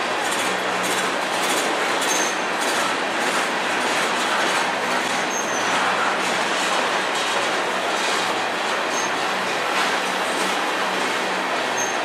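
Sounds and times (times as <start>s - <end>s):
train wheels rolling on rails: 0.0s - 12.0s
high-pitched wheel squeal: 5.3s - 5.7s, 11.7s - 12.0s.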